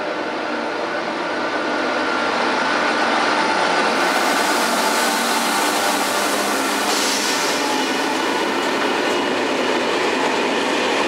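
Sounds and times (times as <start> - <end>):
electric locomotive passing: 0.0 - 11.0
sharp hiss: 4.1 - 7.8.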